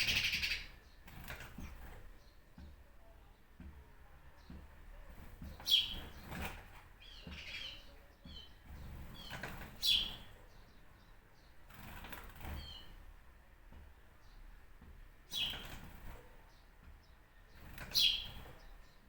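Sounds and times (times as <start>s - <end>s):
wings fluttering: 0.0s - 2.2s, 5.1s - 10.4s, 11.6s - 13.0s, 15.3s - 16.4s, 17.5s - 18.8s
small birds chirping: 0.0s - 19.0s.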